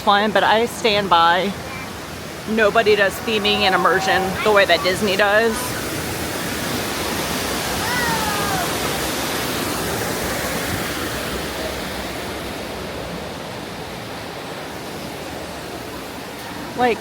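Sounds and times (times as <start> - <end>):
falling water rushing: 0.0 - 17.0.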